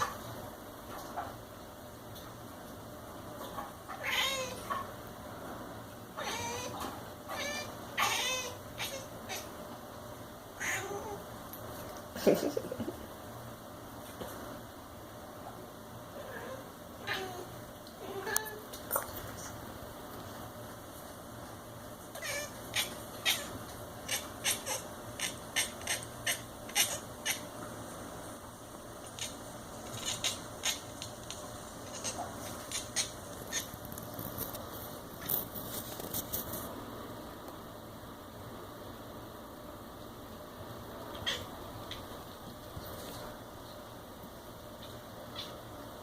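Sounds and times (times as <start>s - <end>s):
cat warbling calls: 22.2s - 27.5s, 29.0s - 31.0s, 31.8s - 33.8s, 41.1s - 42.0s.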